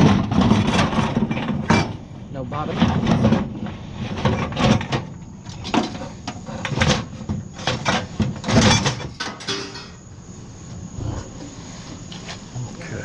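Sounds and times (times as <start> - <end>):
scrap metal clanking: 0.0 - 10.0.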